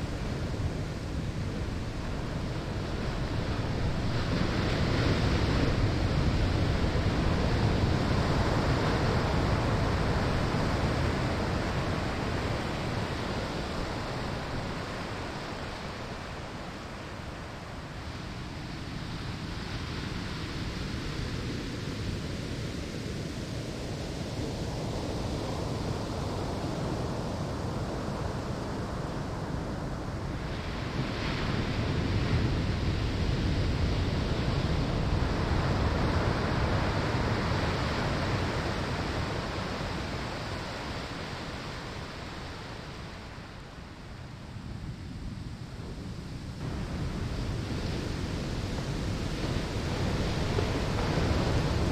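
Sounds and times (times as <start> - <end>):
surf breaking on sandy shore: 0.0 - 51.9.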